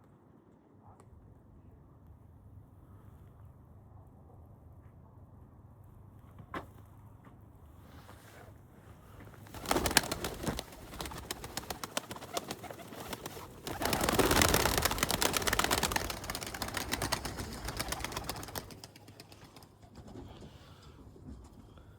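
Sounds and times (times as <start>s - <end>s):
pigeons clicking and rustling: 9.4s - 21.6s.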